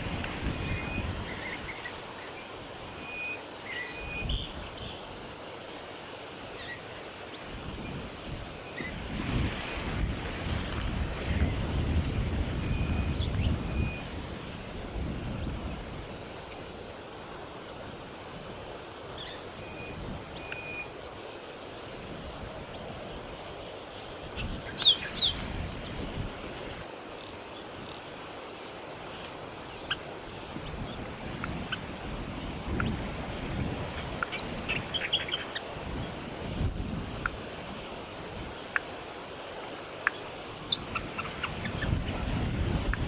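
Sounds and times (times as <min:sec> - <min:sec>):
wind rumble on microphone: 0:00.0 - 0:03.3, 0:04.0 - 0:05.4, 0:07.4 - 0:17.0, 0:17.9 - 0:21.2, 0:21.9 - 0:26.9, 0:29.4 - 0:38.8, 0:40.4 - 0:43.0
bird calls: 0:00.0 - 0:05.2, 0:15.6 - 0:22.0, 0:22.7 - 0:43.0.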